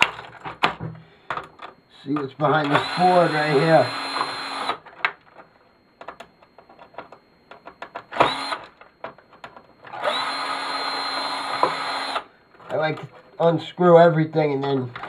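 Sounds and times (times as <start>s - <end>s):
power drill-driver whirring: 2.7s - 4.8s, 8.2s - 8.7s, 9.9s - 12.3s.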